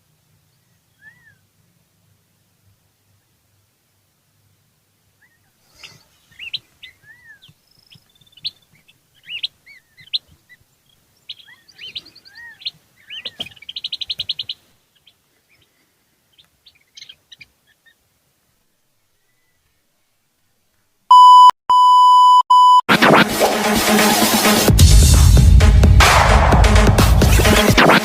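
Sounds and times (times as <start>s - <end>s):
wild birds chirping and calling: 0.6s - 1.5s, 5.1s - 18.2s.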